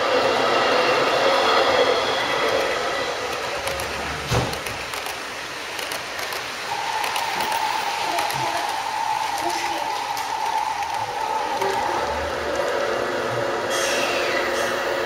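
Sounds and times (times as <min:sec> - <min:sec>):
model trains whirring on track: 0:00.0 - 0:15.0.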